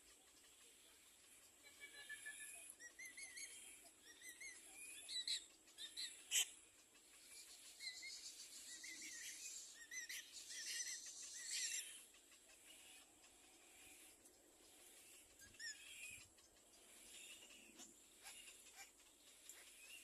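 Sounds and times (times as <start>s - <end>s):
baby birds chirping: 0.0s - 20.0s.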